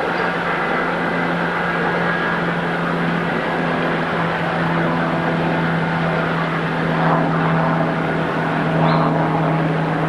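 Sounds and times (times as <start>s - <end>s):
even low hum: 0.0s - 10.0s
passenger train running past: 0.0s - 10.0s.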